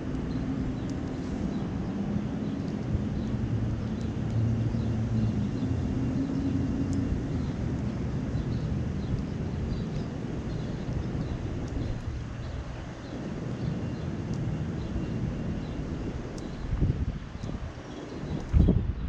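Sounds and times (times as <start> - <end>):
engine rumble: 0.0 - 19.0.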